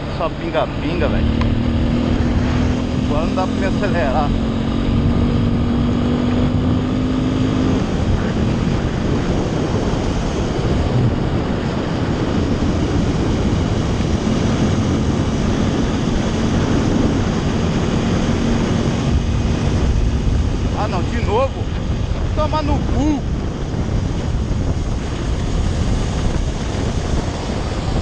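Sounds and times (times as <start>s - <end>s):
motorcycle engine humming: 0.0s - 28.0s
wind rushing over microphone: 0.0s - 28.0s.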